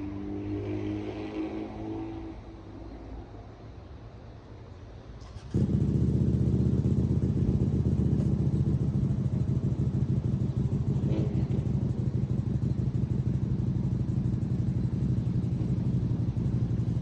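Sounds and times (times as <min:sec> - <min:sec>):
motorcycle engine running: 0:05.3 - 0:17.0.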